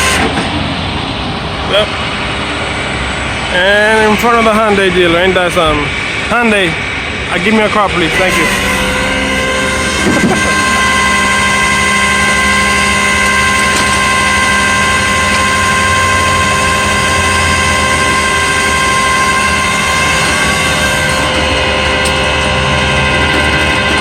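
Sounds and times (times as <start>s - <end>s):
mechanical whine: 0.0s - 24.0s
truck engine drone: 0.0s - 24.0s.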